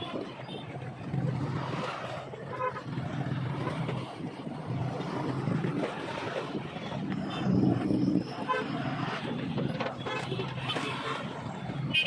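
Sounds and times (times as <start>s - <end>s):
road traffic: 0.0s - 12.0s
vehicle horns honking: 9.9s - 11.3s.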